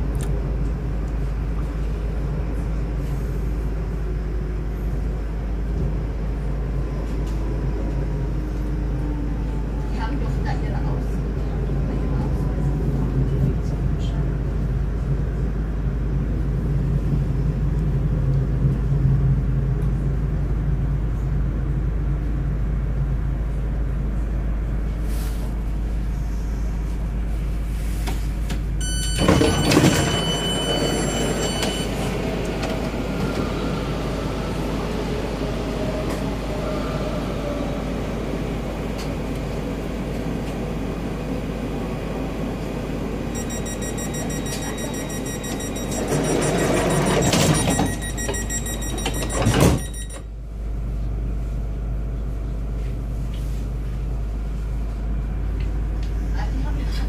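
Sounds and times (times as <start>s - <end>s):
electric train running and braking: 28.1s - 50.8s.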